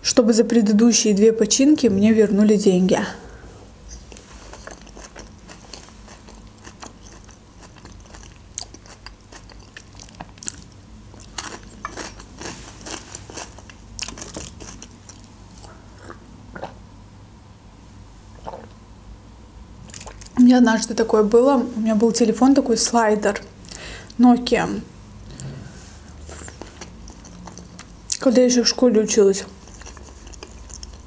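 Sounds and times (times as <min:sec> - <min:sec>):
person chewing crunchy lettuce: 0:03.9 - 0:16.8, 0:18.4 - 0:18.8, 0:19.9 - 0:20.4, 0:25.2 - 0:28.3, 0:29.4 - 0:31.0.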